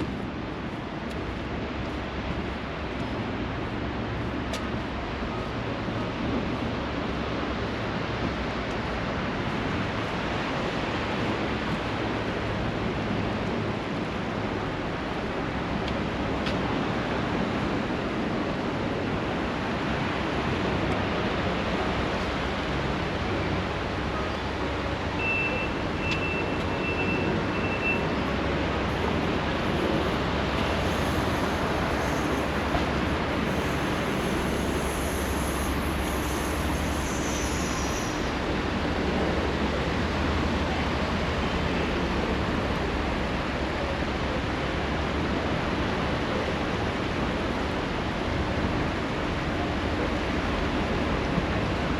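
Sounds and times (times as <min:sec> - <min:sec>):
surf rushing: 0:00.0 - 0:51.9
train approaching: 0:00.0 - 0:51.9
wind: 0:00.0 - 0:51.9
high beeps: 0:25.2 - 0:28.2.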